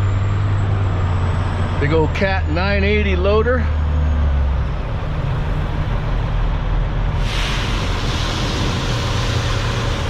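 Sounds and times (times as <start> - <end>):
heavy diesel engine idling: 4.7 - 10.0
loud steady hiss: 7.2 - 10.0.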